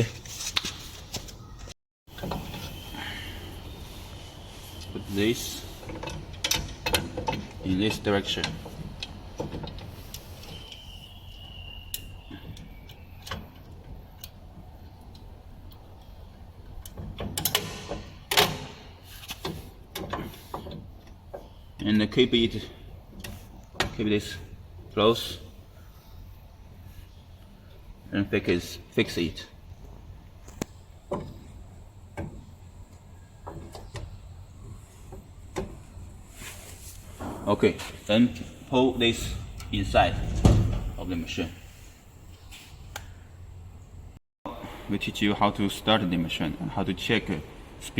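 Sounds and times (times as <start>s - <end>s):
clicks and knocks of parts: 5.8s - 7.6s
steady low hum: 30.8s - 45.1s.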